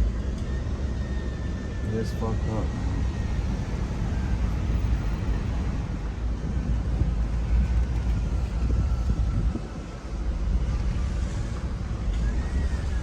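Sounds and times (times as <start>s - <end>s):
vehicle road and engine rumble: 0.0s - 13.0s
wind noise on microphone: 2.7s - 13.0s.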